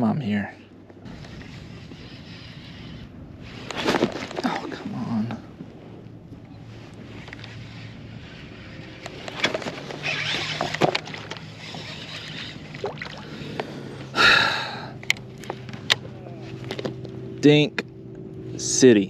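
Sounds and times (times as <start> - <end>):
low steady hum: 0.0 - 19.0
water sloshing: 9.2 - 13.8.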